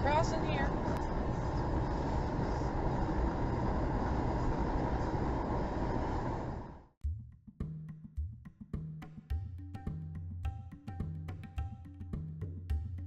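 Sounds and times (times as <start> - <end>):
moving vehicle road noise: 0.0 - 6.9.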